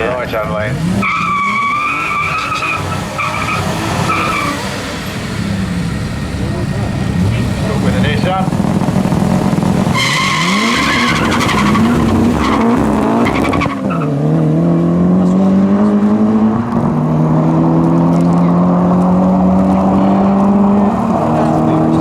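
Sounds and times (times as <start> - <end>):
car engines accelerating at full throttle: 0.0 - 22.0
tyre squeal: 1.0 - 5.2, 9.9 - 14.2.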